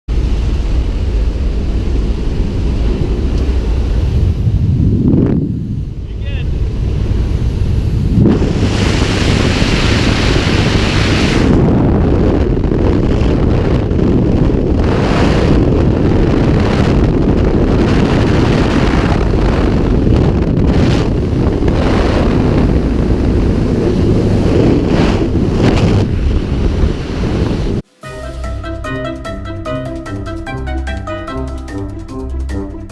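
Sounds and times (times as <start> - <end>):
wind buffeting microphone: 0.1 - 27.9
marimba music: 27.9 - 32.9.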